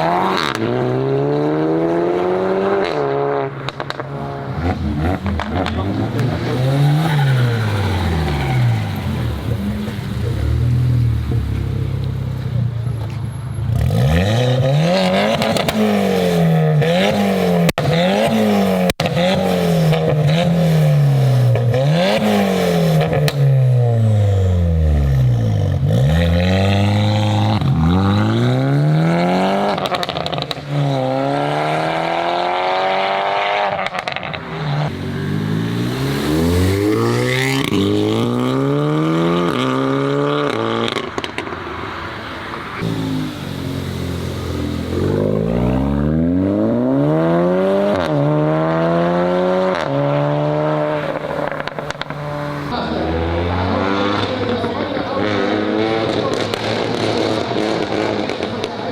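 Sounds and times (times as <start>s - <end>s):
car engine revving hard: 13.7s - 41.4s, 42.8s - 58.8s.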